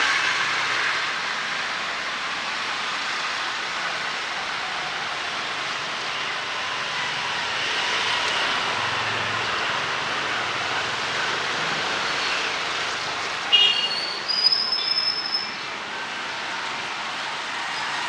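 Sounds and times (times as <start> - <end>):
traffic on wet street: 0.0 - 18.0
high-pitched squeal: 13.6 - 15.8.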